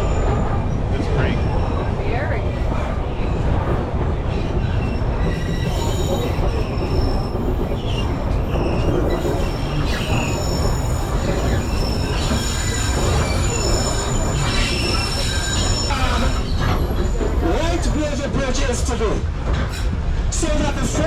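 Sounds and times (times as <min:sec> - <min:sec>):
train wheels rumbling on rails: 0:00.0 - 0:21.0
high wheel squeal: 0:04.3 - 0:17.4, 0:19.6 - 0:20.0.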